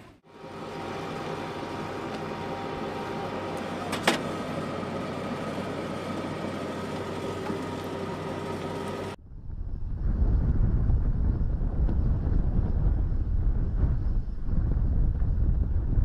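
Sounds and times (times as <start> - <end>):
motor vehicle running: 0.0 - 16.0
wind rumble on microphone: 9.2 - 16.0.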